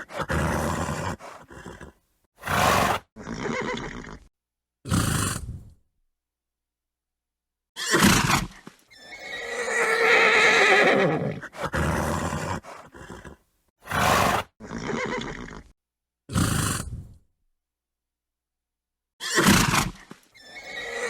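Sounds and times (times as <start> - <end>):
horse neighing: 0.0 - 4.3, 8.9 - 15.7, 20.4 - 21.0.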